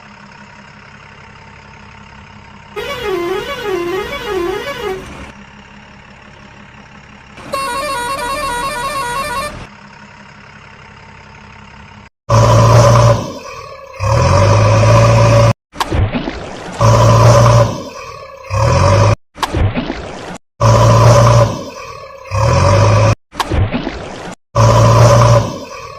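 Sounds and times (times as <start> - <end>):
loud horn blasts: 2.8 - 5.3, 7.4 - 9.7
warbling cartoon horn: 2.8 - 5.3, 7.4 - 9.7.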